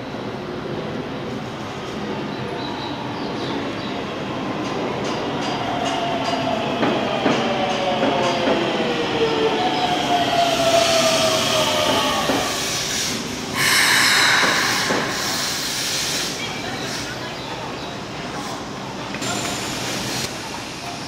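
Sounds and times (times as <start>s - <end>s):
air brake hiss: 12.5s - 16.5s.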